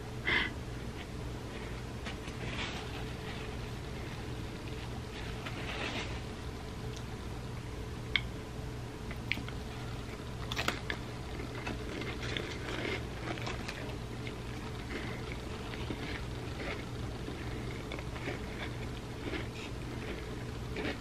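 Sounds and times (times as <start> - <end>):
chewing and crunching chip: 9.1 - 21.0.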